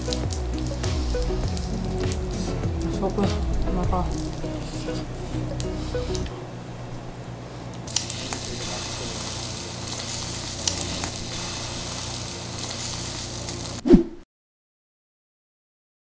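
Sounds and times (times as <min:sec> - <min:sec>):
oysters sizzling in oil: 0:00.0 - 0:06.2, 0:07.9 - 0:13.8.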